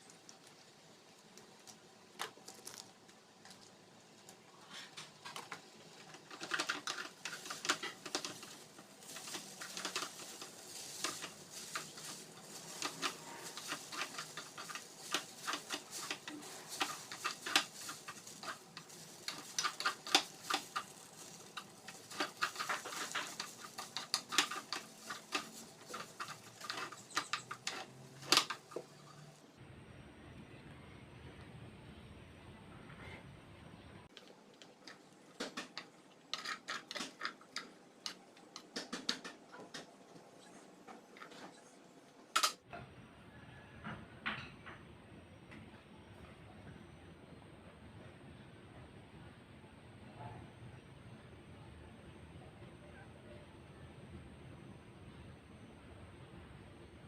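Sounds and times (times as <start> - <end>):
spatula scraping a pan: 4.7 - 29.3.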